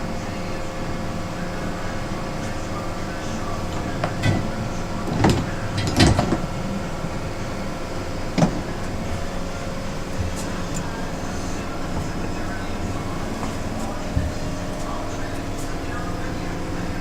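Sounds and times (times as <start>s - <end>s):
parts washer humming: 0.0s - 17.0s
knocks and clatters: 3.7s - 6.6s.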